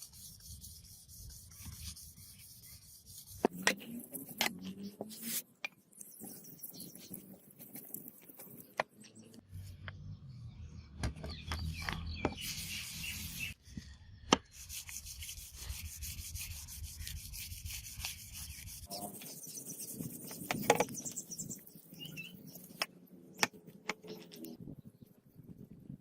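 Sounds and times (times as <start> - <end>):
abrasive rubbing strokes: 0.0 - 5.4.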